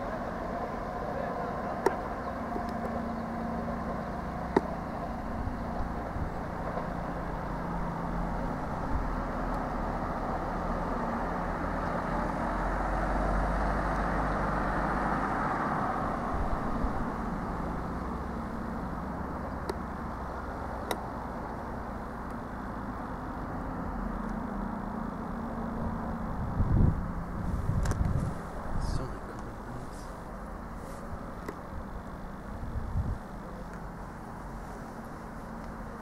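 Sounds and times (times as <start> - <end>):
diesel train rumbling: 0.0 - 36.0.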